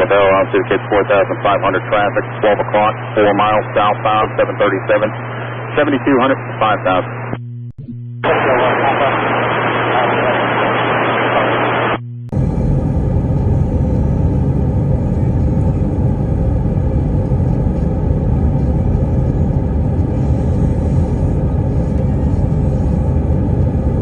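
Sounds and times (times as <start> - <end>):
radio hiss: 0.0 - 7.4, 8.2 - 12.0
airplane cabin rumble: 0.0 - 24.0.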